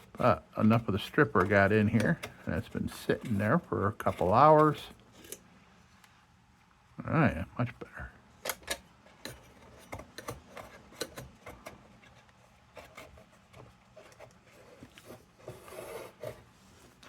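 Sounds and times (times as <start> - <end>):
rag rubbing: 0.0 - 5.4.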